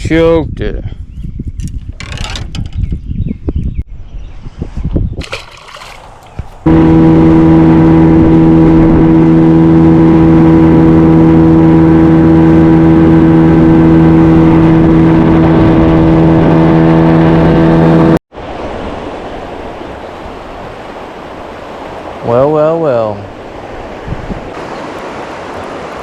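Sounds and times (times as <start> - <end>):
knocks and rustles: 1.7 - 2.9
outboard motor running: 5.4 - 18.2.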